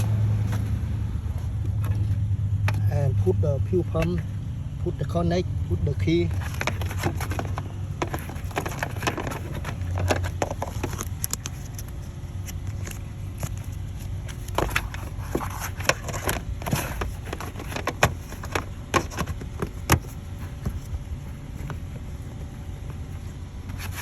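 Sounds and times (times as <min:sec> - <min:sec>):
low steady rumble: 0:00.0 - 0:24.0
clicks and knocks of hand work: 0:06.3 - 0:11.9.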